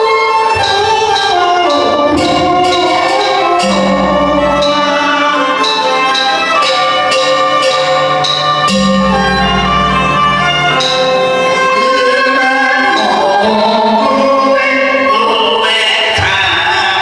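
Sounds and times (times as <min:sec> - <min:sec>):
bowed fiddle melody: 0:00.0 - 0:15.4
opera instrumental ensemble: 0:00.0 - 0:17.0
low struck tone ringing: 0:02.1 - 0:12.1.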